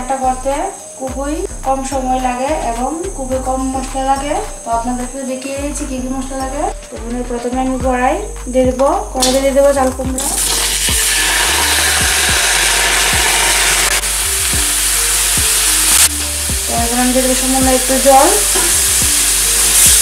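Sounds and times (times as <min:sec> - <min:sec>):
background music: 0:00.0 - 0:20.0
vegetables sizzling in hot oil: 0:09.2 - 0:20.0.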